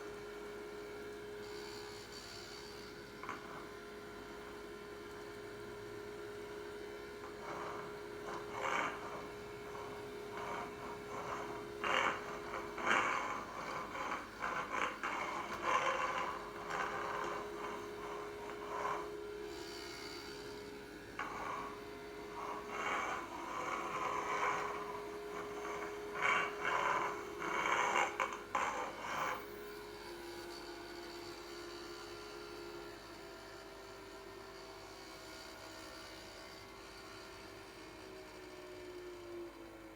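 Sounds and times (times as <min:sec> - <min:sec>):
small vacuum motor humming: 0:00.0 - 0:39.9
vacuum nozzle rushing and scraping: 0:07.3 - 0:19.7, 0:21.2 - 0:29.5.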